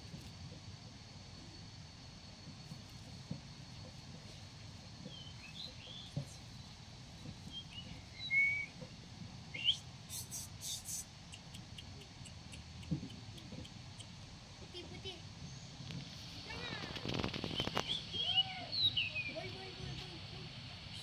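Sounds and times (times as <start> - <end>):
small birds chirping and whistling: 5.1 - 6.6, 7.2 - 8.8, 9.5 - 14.1, 17.1 - 19.5
bird chattering notes: 9.6 - 14.2.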